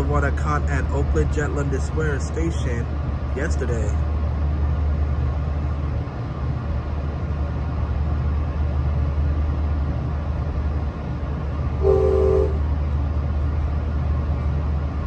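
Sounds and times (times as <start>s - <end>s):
train rumbling from inside: 0.0s - 15.0s
brief multi-pitch tone: 11.8s - 12.6s.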